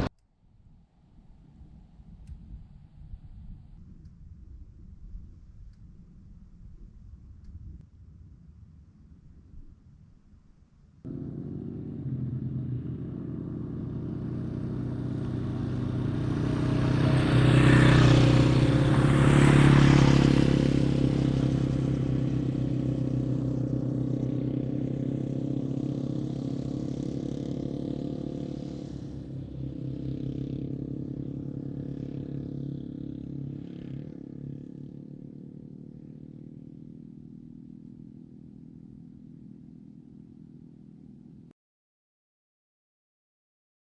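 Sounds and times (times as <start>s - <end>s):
motorcycle engine running: 11.1s - 41.5s.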